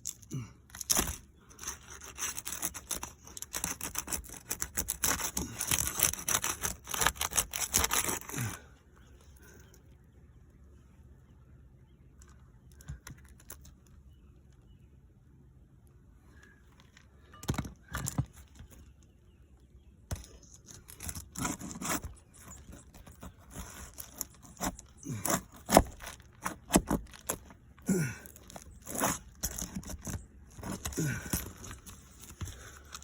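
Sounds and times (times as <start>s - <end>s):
roof shingles scraping and tearing: 0.7s - 8.6s, 20.5s - 33.0s.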